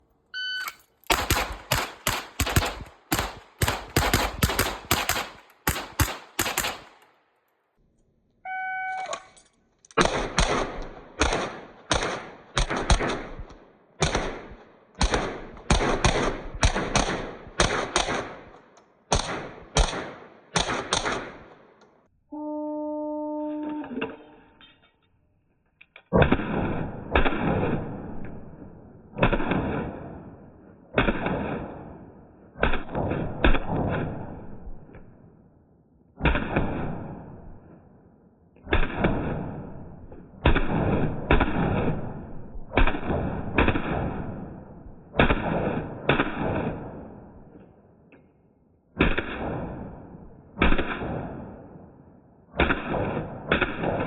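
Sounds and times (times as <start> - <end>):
shot timer beep: 0.4 - 0.8
pistol shots: 0.7 - 7.2, 9.9 - 21.8, 29.2 - 32.0, 40.4 - 47.3, 49.0 - 51.7, 52.5 - 54.0.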